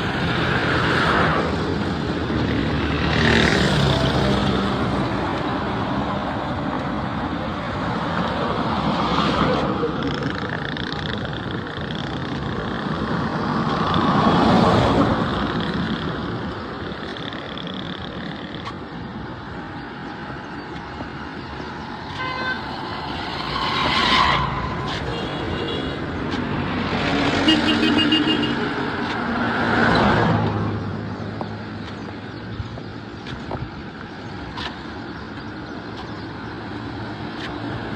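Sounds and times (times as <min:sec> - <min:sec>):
vehicles passing by: 0:00.0 - 0:37.9
car horn tooting: 0:22.1 - 0:22.8, 0:27.4 - 0:28.8.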